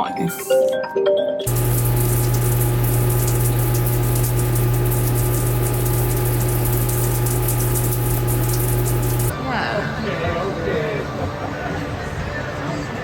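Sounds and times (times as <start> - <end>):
loud machine hum: 1.5 - 9.3.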